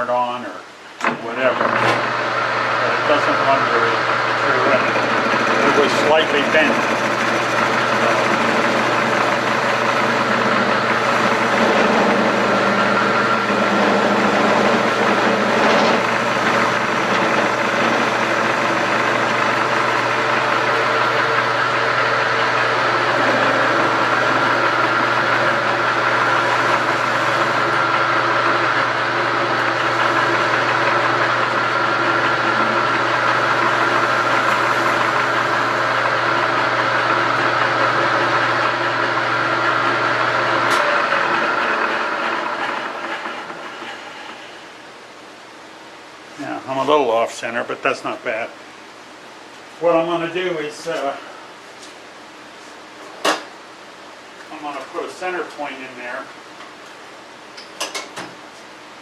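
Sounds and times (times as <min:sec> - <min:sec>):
metal lathe running: 0:01.0 - 0:44.8.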